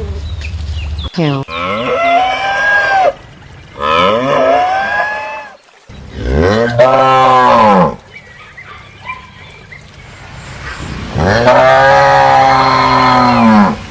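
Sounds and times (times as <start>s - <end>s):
cow mooing: 1.5s - 3.2s, 6.2s - 8.0s, 11.1s - 13.8s.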